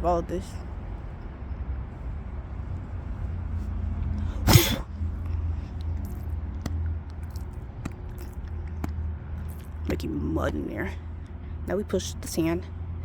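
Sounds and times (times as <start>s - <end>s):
person sneezing: 4.3s - 4.9s.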